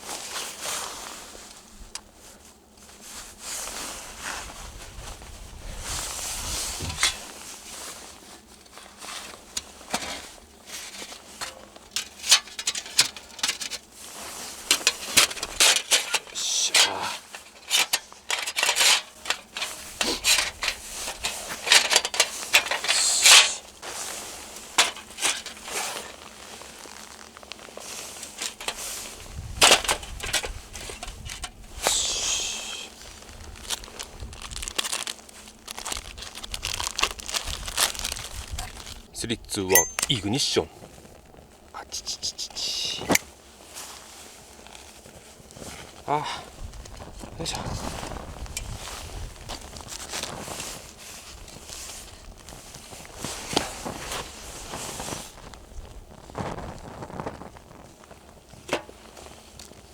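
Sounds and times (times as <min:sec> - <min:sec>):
footsteps crunching in snow: 0:00.0 - 0:12.2, 0:12.8 - 0:16.3, 0:19.2 - 0:39.1, 0:43.0 - 0:59.9
crinkly material crumpling: 0:00.0 - 0:31.8, 0:32.6 - 0:41.7, 0:43.0 - 0:59.9
wind rumbling on microphone: 0:04.1 - 0:07.2, 0:29.1 - 0:31.8, 0:33.2 - 0:34.7, 0:36.0 - 0:39.1, 0:46.5 - 0:50.5.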